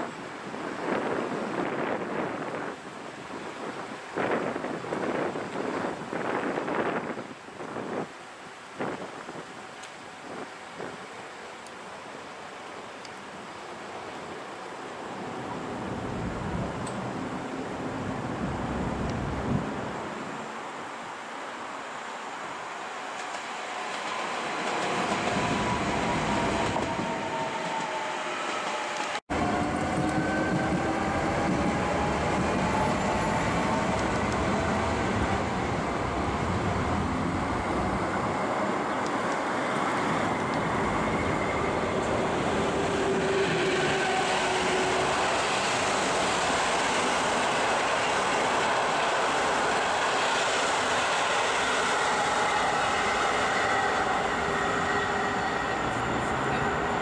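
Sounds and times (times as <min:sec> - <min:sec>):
train wheels rolling on rail: 0:00.0 - 0:19.7, 0:22.0 - 0:57.0.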